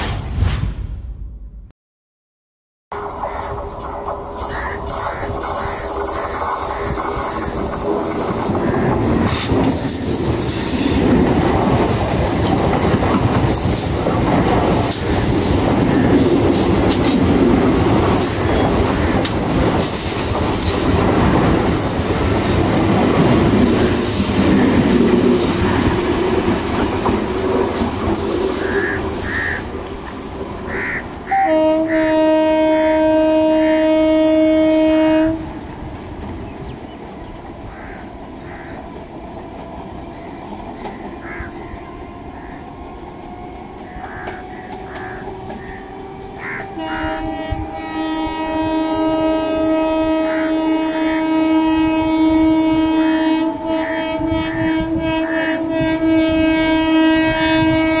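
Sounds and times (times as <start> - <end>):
train wheels rumbling and clacking: 3.0 - 31.3, 35.2 - 47.7
train horn blast: 30.8 - 35.6, 46.4 - 58.0.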